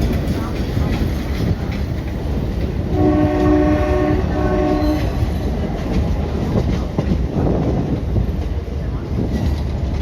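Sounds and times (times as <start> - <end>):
train rumbling on track: 0.0 - 10.0
train horn blasts: 2.9 - 5.4.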